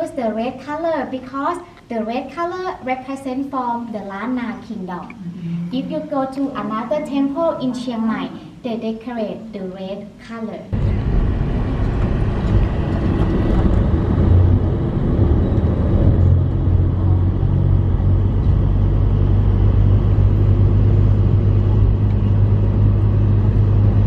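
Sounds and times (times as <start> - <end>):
vehicle engine and road noise: 10.8 - 24.0.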